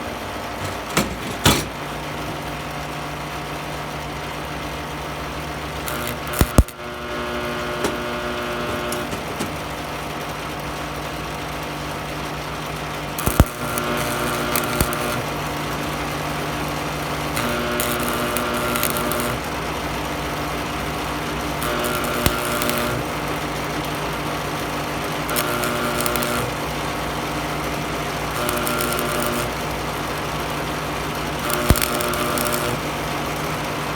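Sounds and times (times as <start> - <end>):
welding arc crackling: 5.5 - 9.8, 12.8 - 33.9
welder humming: 5.6 - 9.8, 13.0 - 33.9.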